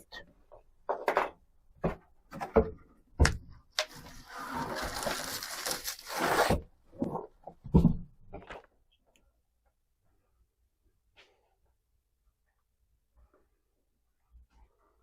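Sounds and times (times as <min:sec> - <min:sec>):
rustling or scraping: 0:03.9 - 0:07.2.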